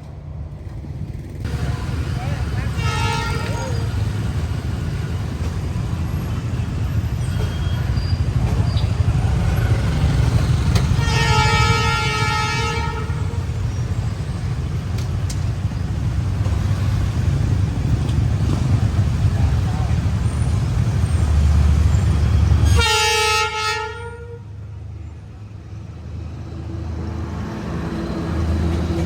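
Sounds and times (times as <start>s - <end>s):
train horn blast: 2.5s - 4.1s, 10.8s - 13.6s, 22.6s - 24.6s.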